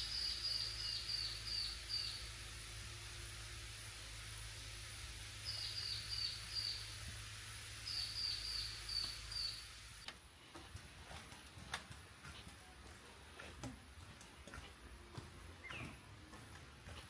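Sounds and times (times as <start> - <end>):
bird chirping: 0.0 - 2.2, 5.4 - 6.9, 7.8 - 9.7, 15.6 - 16.1
insect hiss: 0.0 - 10.1.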